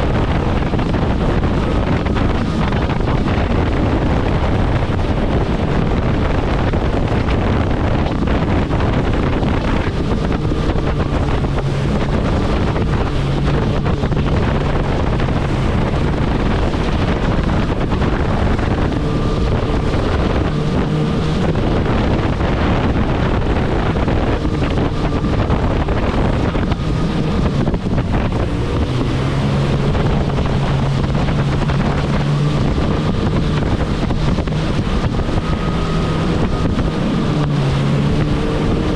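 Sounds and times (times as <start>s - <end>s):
jet ski engine hum: 0.0s - 38.9s
water rushing past hull: 0.0s - 38.9s
wind buffeting microphone: 0.0s - 38.9s.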